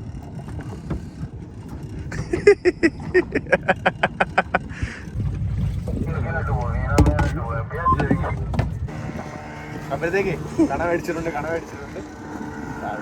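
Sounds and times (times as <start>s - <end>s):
steady low rumble: 0.0s - 13.0s
person laughing: 2.1s - 5.0s.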